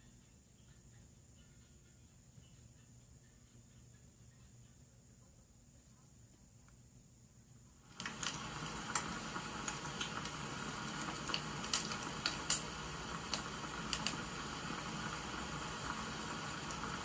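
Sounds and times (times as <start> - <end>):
wood fire crackling and popping: 7.9 - 17.0.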